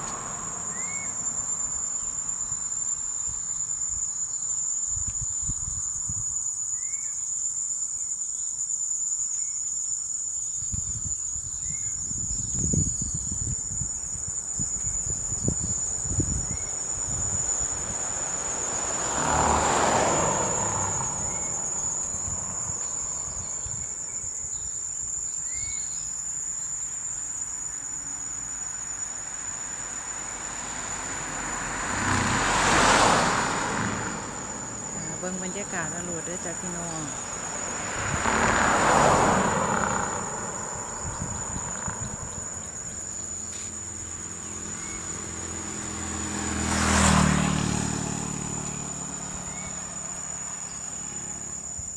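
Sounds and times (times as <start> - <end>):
vehicle passing: 0.0 - 3.3, 15.3 - 24.4, 29.5 - 51.9
insects buzzing: 0.0 - 51.9.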